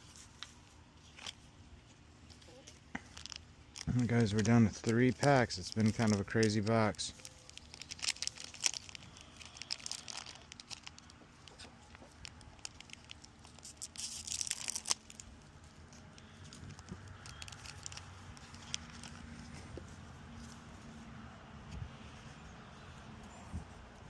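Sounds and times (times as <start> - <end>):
foil wrapper tearing and crinkling: 2.3 - 19.5.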